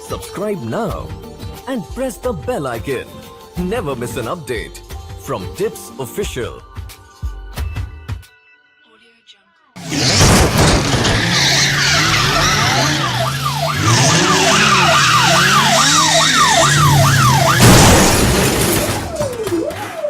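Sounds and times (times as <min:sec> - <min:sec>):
engine hum: 0:09.8 - 0:19.2
tyres skidding: 0:09.8 - 0:20.0
siren sweeping up and down: 0:10.7 - 0:20.0.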